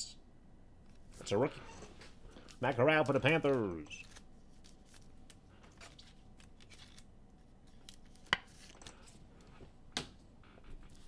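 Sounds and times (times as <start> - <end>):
cards rustling: 2.0 - 9.5.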